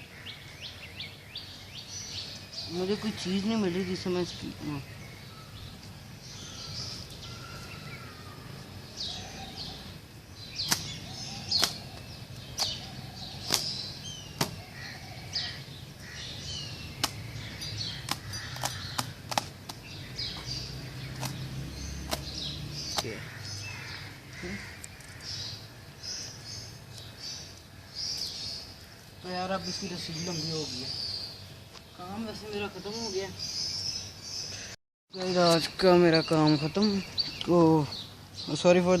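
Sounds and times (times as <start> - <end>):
outdoor background: 0.0 - 39.0
small birds chirping: 0.0 - 39.0.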